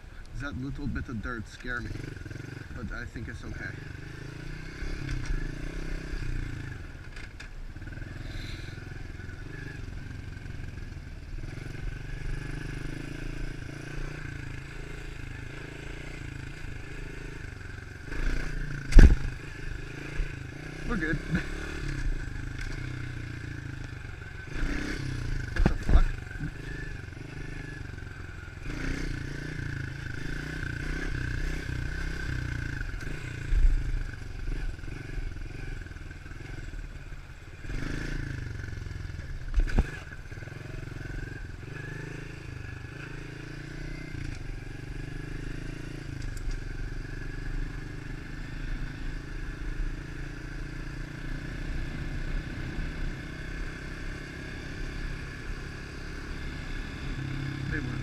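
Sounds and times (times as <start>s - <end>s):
motorbike engine running: 0.6s - 58.0s
sharp thumps: 18.8s - 19.4s, 25.5s - 26.6s.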